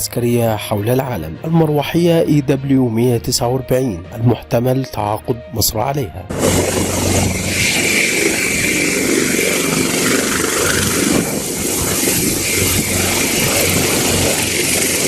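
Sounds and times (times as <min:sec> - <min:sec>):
helicopter engine and rotor: 0:06.3 - 0:15.0
high steady whine: 0:06.3 - 0:15.0.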